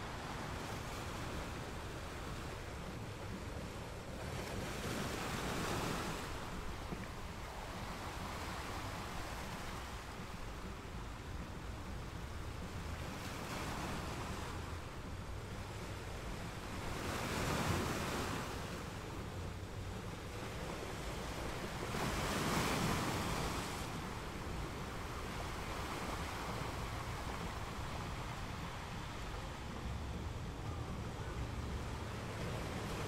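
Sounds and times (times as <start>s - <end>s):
sea waves washing: 0.0s - 33.0s.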